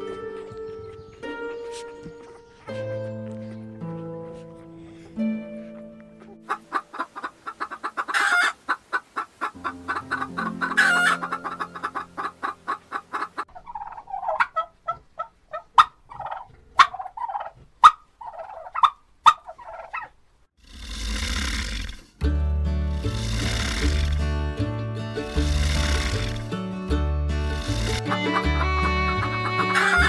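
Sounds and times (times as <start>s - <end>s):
music: 0.0s - 6.6s, 9.6s - 12.0s, 22.2s - 30.0s.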